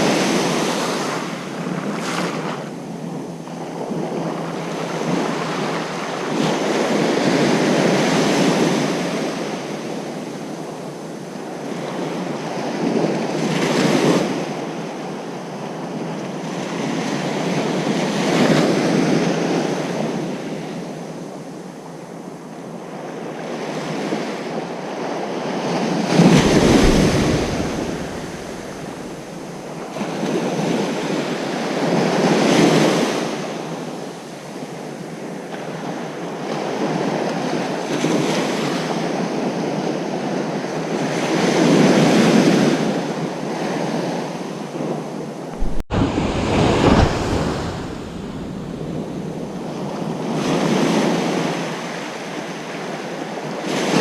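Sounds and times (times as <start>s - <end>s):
ocean surf breaking on beach: 26.1s - 30.8s, 45.6s - 50.6s.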